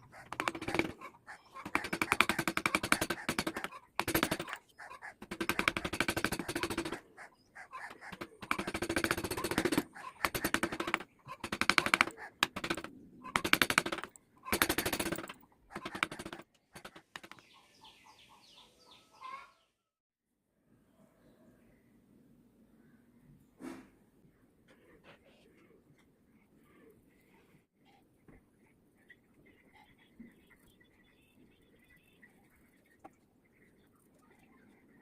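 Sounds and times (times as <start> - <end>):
carving tool rasping wood: 0.0 - 1.0, 1.6 - 4.6, 7.8 - 17.4.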